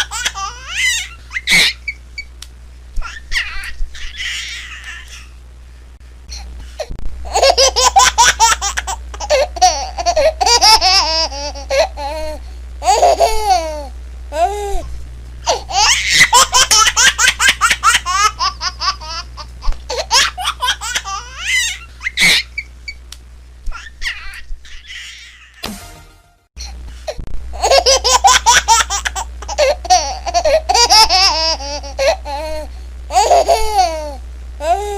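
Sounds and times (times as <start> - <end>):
baby laughing: 0.0 - 2.0, 3.0 - 5.4, 7.3 - 14.5, 15.5 - 22.7, 23.7 - 25.6, 27.6 - 34.8.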